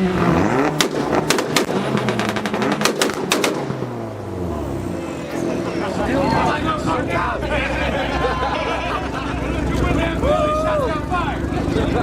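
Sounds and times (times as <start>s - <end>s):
exhaust backfire bangs: 0.0s - 5.8s
car engine revving: 0.0s - 12.0s.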